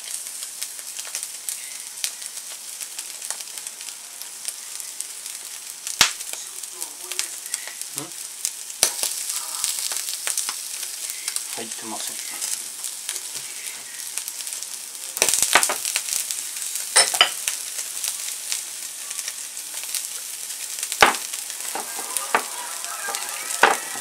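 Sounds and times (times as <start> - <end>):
shrimp heads sizzling in a pan: 0.0 - 24.0
crackling clicks: 8.4 - 11.6.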